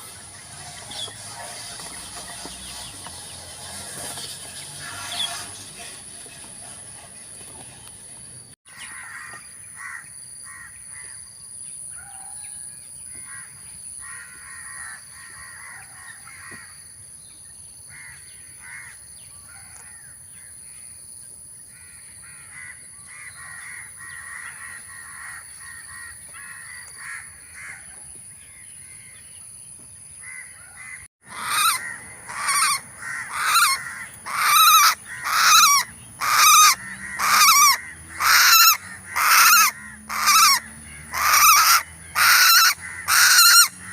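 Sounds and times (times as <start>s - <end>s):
wild birds chattering: 21.8s - 43.9s
bird squawking harshly: 31.2s - 43.9s.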